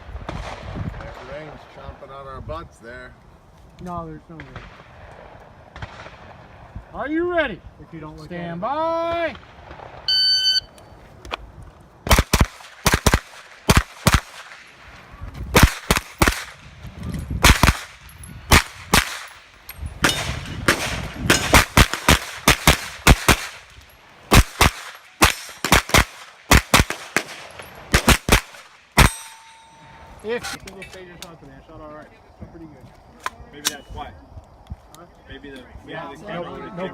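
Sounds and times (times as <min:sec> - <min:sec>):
rapid carbine gunshots: 0:20.7 - 0:23.6, 0:24.3 - 0:28.6
steel targets ringing: 0:29.0 - 0:30.2.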